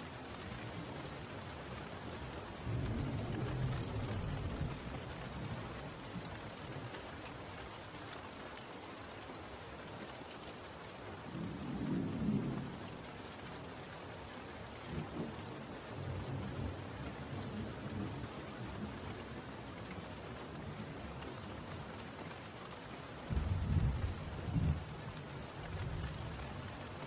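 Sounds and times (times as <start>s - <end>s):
steady rain falling: 0.0s - 27.0s
thunder rumbling: 23.3s - 26.4s.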